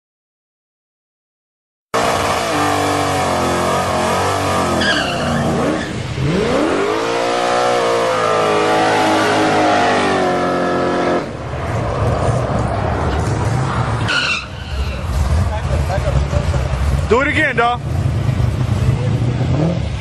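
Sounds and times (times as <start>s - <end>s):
car engine accelerating hard: 2.0s - 20.0s
brief high squeal: 14.0s - 15.0s.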